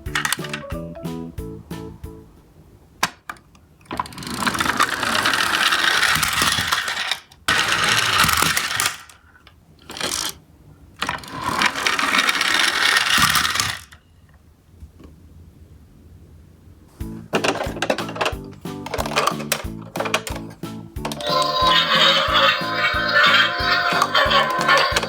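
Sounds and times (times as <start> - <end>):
toy trucks rattling on hard surface: 3.9 - 10.4, 11.0 - 14.0, 17.4 - 25.0.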